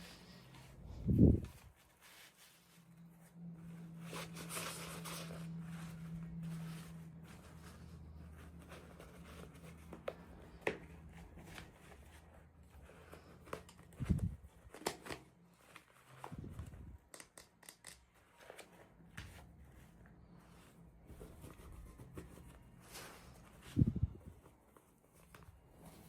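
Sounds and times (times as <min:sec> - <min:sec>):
faint low hum: 0:00.0 - 0:14.8
clicks and taps of plastic pieces: 0:17.1 - 0:18.1.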